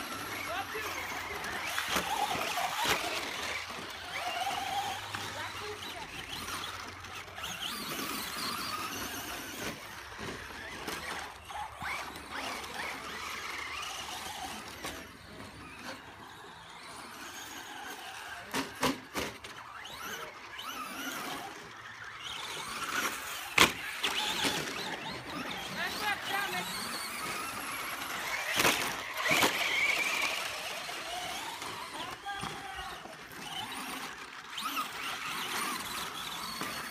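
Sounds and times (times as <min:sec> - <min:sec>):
toy car motors whining: 0:00.0 - 0:36.9.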